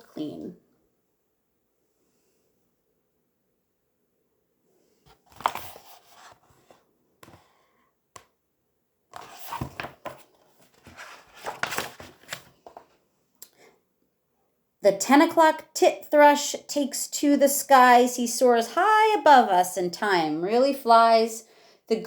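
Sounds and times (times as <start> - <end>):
paper pages rustling: 5.1 - 7.5, 9.1 - 13.0.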